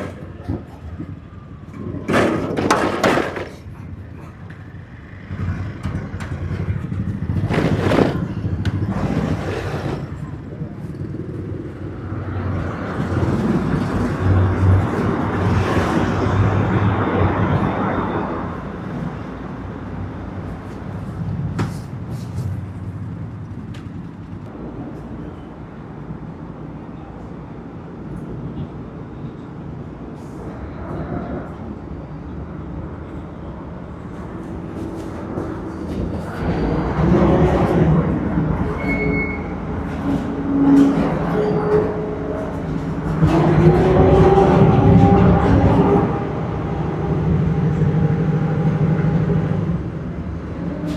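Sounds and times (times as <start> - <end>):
motorbike engine and tyre rumble: 0.0 - 18.1
rush of traffic: 0.0 - 50.9.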